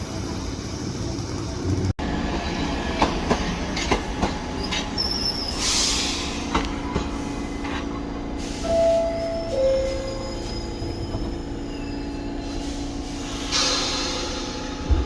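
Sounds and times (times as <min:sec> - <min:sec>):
subway train rumbling: 0:00.0 - 0:15.0
wheels clacking over rail joints: 0:02.9 - 0:05.2
high wheel squeal: 0:04.6 - 0:06.5, 0:08.4 - 0:14.8.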